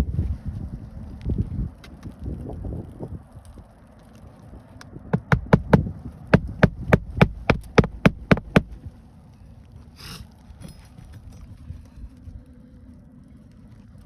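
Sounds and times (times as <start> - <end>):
hammer driving nails: 5.2 - 8.8.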